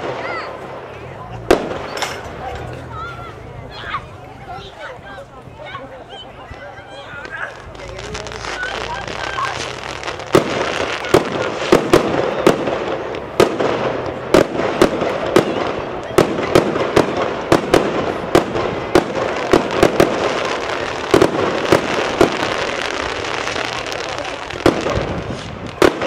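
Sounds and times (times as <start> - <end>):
fireworks bangs: 0.0 - 4.0, 6.9 - 26.0
crackling hiss: 7.1 - 26.0.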